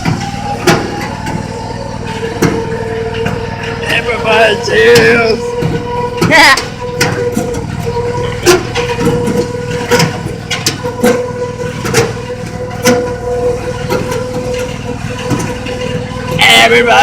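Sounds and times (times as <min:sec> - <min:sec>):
low rumble: 0:00.0 - 0:16.5
train motor whine: 0:00.0 - 0:17.0
wheels clacking and knocking: 0:00.0 - 0:17.0.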